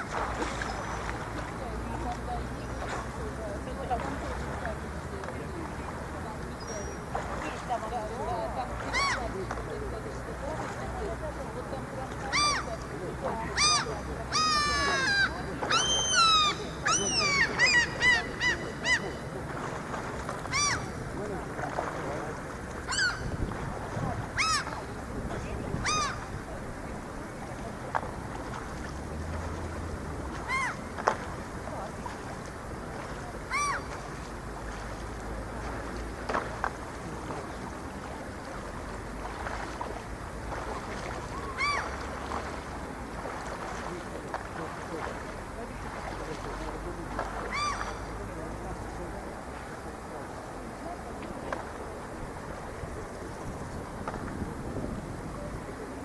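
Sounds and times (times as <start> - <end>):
gulls calling: 0.0 - 56.0
water lapping: 0.0 - 56.0
seagull call: 8.6 - 9.5, 12.2 - 19.6, 20.4 - 21.1, 22.8 - 26.5, 30.3 - 31.2, 33.2 - 34.2, 40.5 - 42.1, 47.4 - 48.2.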